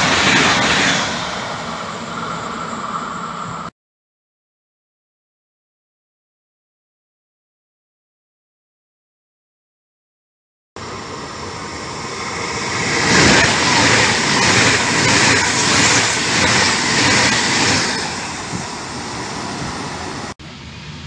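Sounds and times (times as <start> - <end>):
high-speed train passing: 0.0 - 3.7, 10.8 - 21.0.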